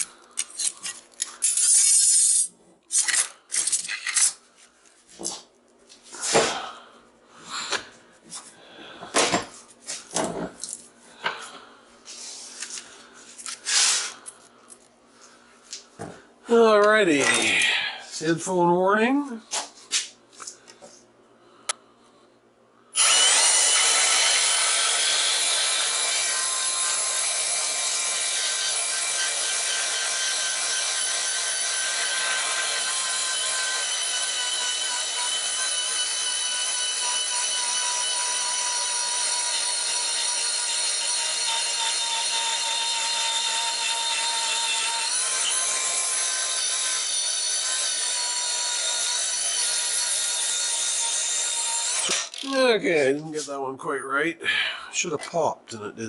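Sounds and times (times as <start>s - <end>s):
angle grinder cutting steel: 23.0s - 52.8s.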